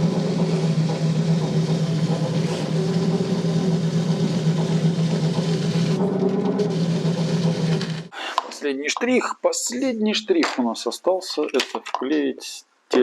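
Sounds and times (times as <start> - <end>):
shoe polishing machine running: 0.0 - 8.1.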